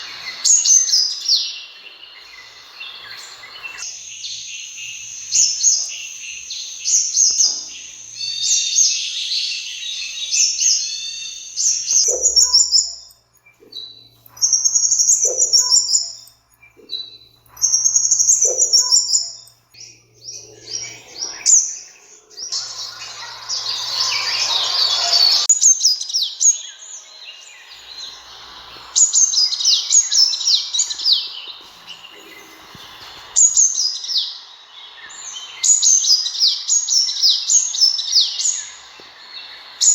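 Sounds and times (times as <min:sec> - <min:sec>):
bird chirping and trilling: 0:00.0 - 0:39.9
rough hiss: 0:20.6 - 0:25.5, 0:26.4 - 0:36.5.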